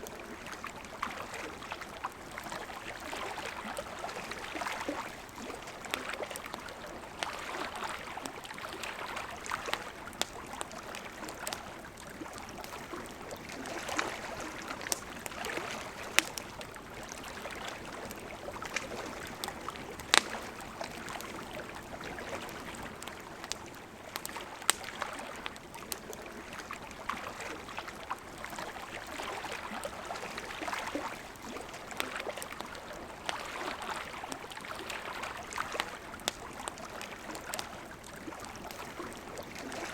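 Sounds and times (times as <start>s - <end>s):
campfire crackling and popping: 0.0s - 39.9s
river water flowing: 0.0s - 39.9s.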